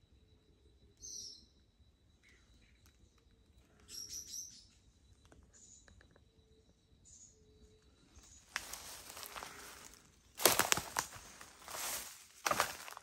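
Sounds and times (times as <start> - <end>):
faint bird chirps: 0.0 - 10.4.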